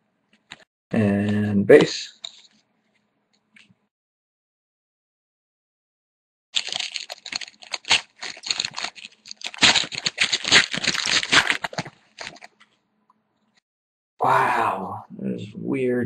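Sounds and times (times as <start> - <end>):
trading cards crinkling and clicking: 2.1 - 2.6, 6.6 - 12.8.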